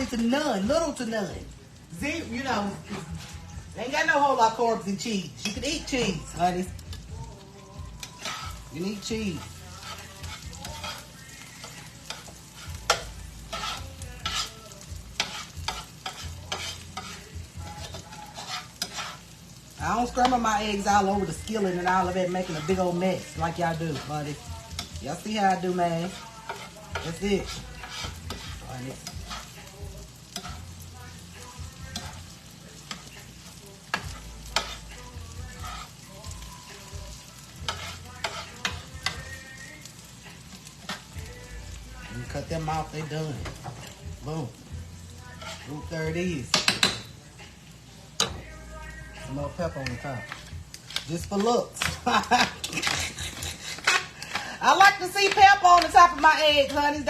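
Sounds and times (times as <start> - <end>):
light sizzle: 0.0 - 57.0
spatula scraping skillet: 2.0 - 57.0
utensil clicking against pan: 11.6 - 14.5, 24.7 - 29.5, 49.8 - 54.6, 55.2 - 56.8.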